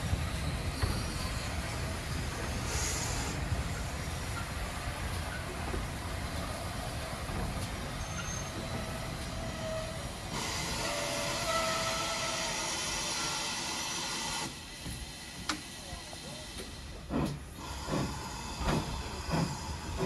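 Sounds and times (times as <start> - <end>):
train rumbling on rails: 0.0 - 20.0
loud hiss with squealing tones: 7.8 - 14.5.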